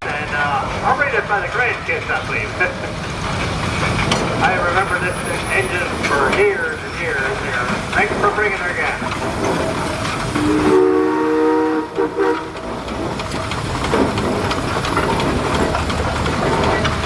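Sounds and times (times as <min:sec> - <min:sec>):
engines running: 0:00.0 - 0:10.5, 0:12.6 - 0:17.0
steam whistle chord: 0:10.4 - 0:12.4.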